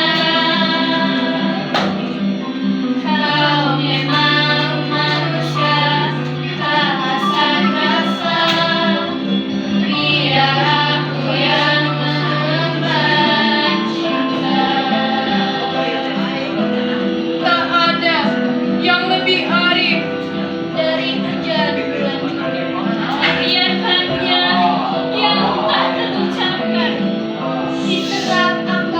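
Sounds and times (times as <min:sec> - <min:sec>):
instrumental accompaniment: 0:00.0 - 0:28.9
high voice singing: 0:02.9 - 0:28.9.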